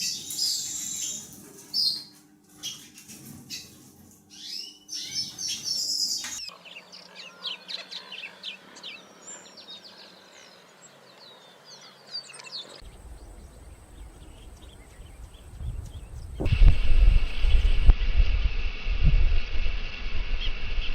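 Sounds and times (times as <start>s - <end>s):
small birds chirping: 0.0s - 16.5s
wind rumbling on microphone: 12.8s - 20.9s.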